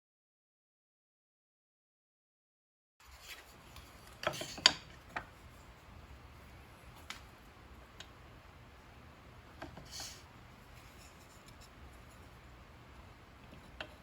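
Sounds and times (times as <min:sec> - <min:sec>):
low steady hum: 0:03.0 - 0:14.0.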